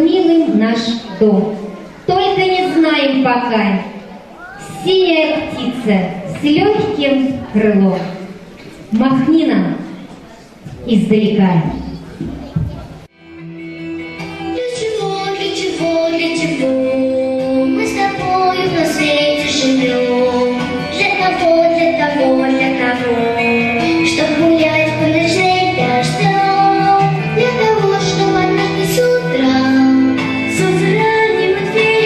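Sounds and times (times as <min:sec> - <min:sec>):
instrumental backing track: 0:11.6 - 0:32.0
girl singing: 0:14.3 - 0:32.0.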